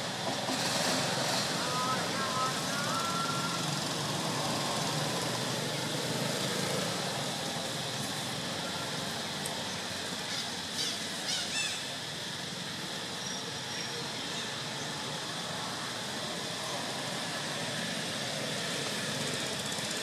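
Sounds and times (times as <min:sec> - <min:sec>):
outdoor background noise: 0:00.0 - 0:20.0
high chirping animal calls: 0:10.3 - 0:11.8.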